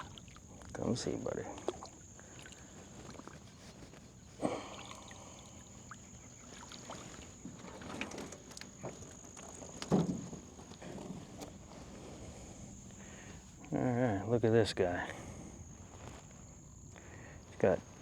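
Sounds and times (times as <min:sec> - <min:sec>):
fish thumping in boat: 0:06.6 - 0:12.0.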